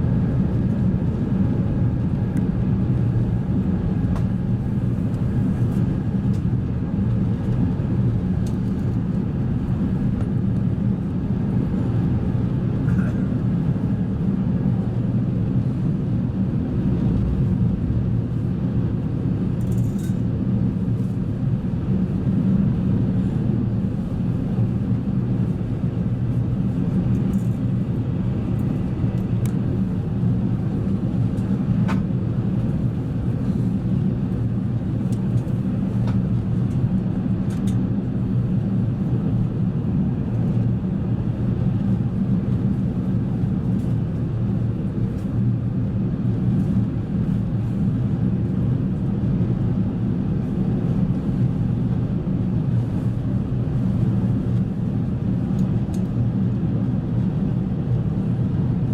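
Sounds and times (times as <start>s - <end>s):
airplane cabin drone: 0.0s - 58.9s.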